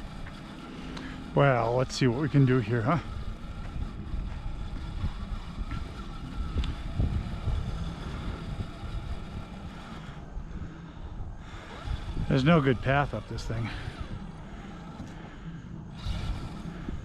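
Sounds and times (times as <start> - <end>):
faint electric motor whine: 0.0 - 17.0
wind rumbling on microphone: 0.0 - 17.0.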